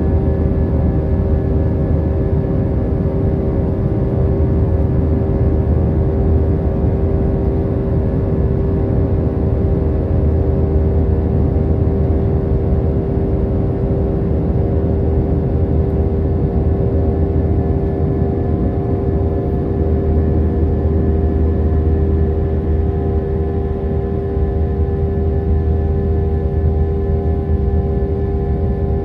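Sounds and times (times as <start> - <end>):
jet engine drone in cabin: 0.0 - 29.0.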